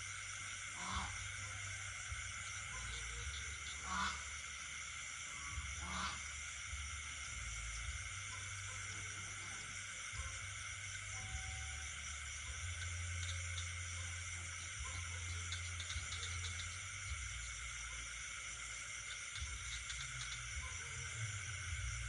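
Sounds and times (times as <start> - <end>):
frog croaking: 0.0 - 22.0
high-pitched insect trill: 0.0 - 22.0.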